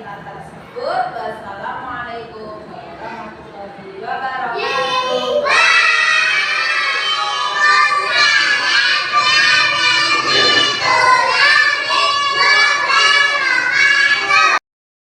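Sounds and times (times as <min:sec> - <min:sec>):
child singing: 0:04.6 - 0:14.6.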